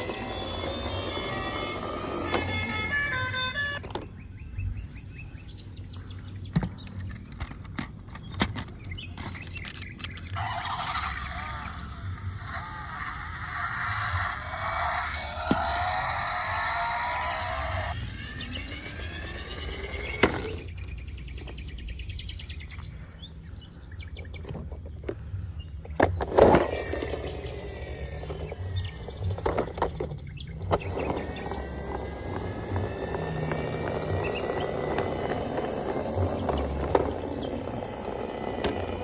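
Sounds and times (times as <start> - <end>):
outdoor background noise: 0.0 - 39.0.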